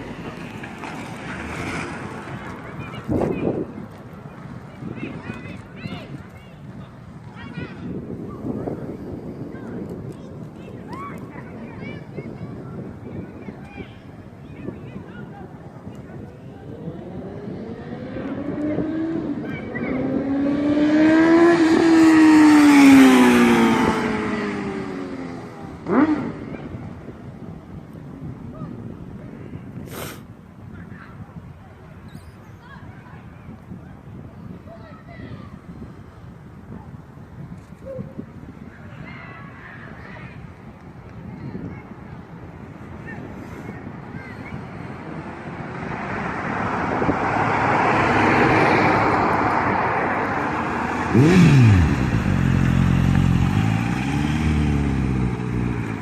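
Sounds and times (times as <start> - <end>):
motorcycle passing by at speed: 0.0 - 3.6, 16.2 - 27.0, 44.5 - 56.0.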